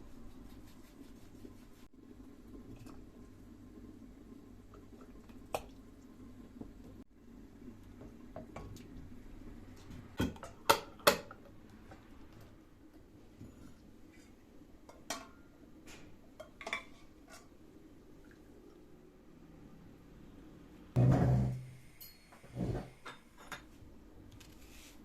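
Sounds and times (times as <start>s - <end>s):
dishes and utensils clinking: 16.4s - 17.5s, 21.0s - 23.8s.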